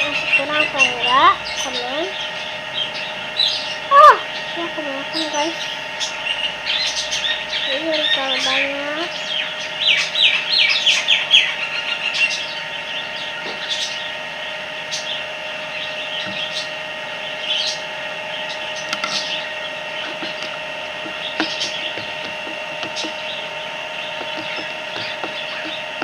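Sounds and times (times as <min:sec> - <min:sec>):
bird chirping falling notes: 0:18.7 - 0:26.0.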